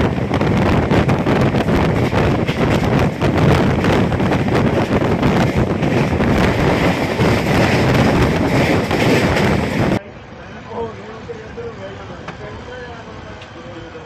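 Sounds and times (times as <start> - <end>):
wind buffeting microphone: 0.0 - 10.0
rushing rumble: 0.0 - 13.4.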